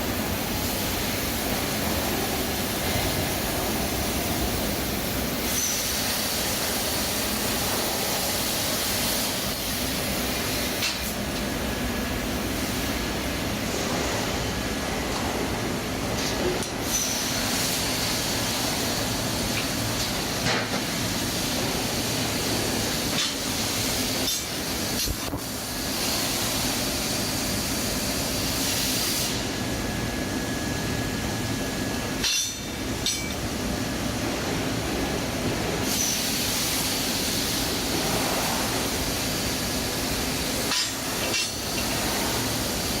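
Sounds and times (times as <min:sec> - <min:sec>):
plasma cutter hissing: 0:00.0 - 0:29.6, 0:35.8 - 0:43.0.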